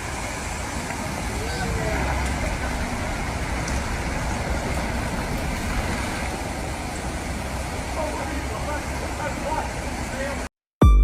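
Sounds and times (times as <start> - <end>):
moving car road and engine noise: 0.0 - 10.5.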